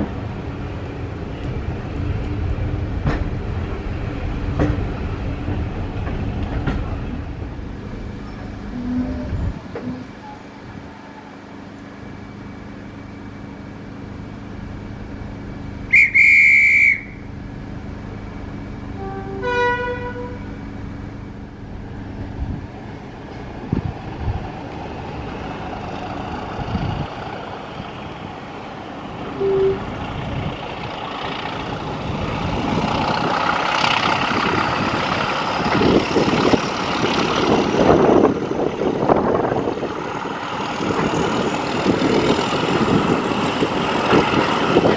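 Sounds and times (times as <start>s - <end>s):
train engine and running noise: 0.0s - 44.9s
diesel locomotive horn: 8.7s - 10.4s, 15.9s - 17.3s, 18.9s - 20.6s, 29.3s - 30.0s
shrill guard's whistle: 15.9s - 17.2s.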